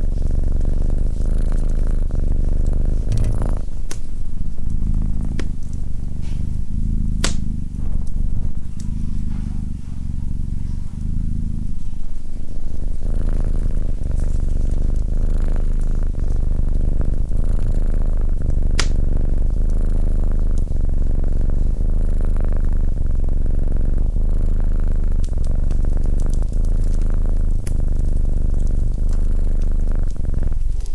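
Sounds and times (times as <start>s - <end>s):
cat purring: 0.0s - 30.9s
fire crackling and popping: 7.1s - 8.2s, 18.4s - 19.2s, 25.2s - 30.9s.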